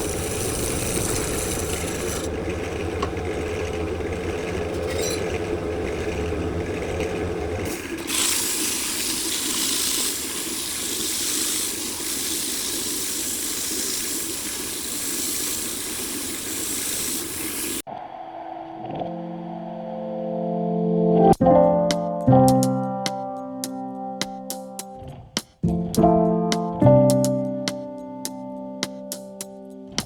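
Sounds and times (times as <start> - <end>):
motor hum: 0.0 - 8.9
steady hiss: 8.2 - 17.8.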